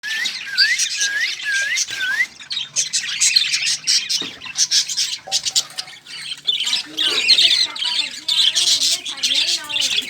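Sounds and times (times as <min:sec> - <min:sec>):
cockatiels calling: 0:00.0 - 0:10.0.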